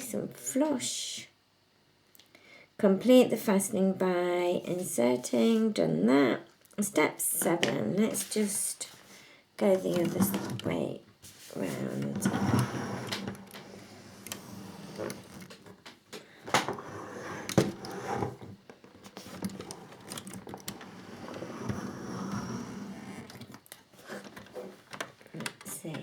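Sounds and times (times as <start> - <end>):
rustling of handling: 8.1 - 26.0.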